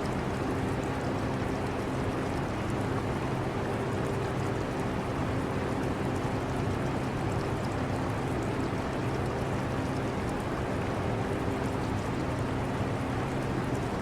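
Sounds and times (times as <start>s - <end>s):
trickle of aquarium water: 0.0s - 14.0s.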